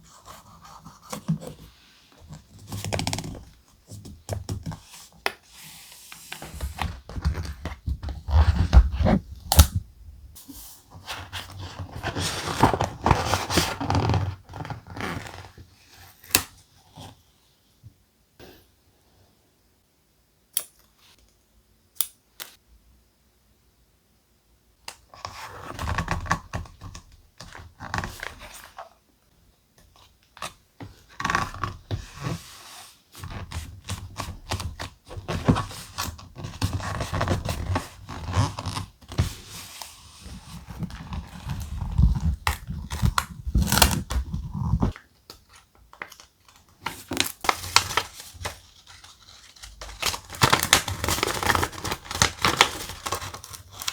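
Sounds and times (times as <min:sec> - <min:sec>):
thick paper rustling and crinkling: 0:11.0 - 0:15.4, 0:46.0 - 0:53.9.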